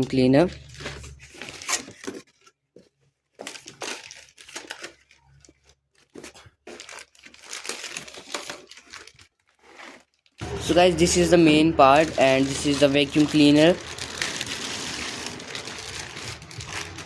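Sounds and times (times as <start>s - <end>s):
packaging crinkling and rustling: 0.4s - 17.0s.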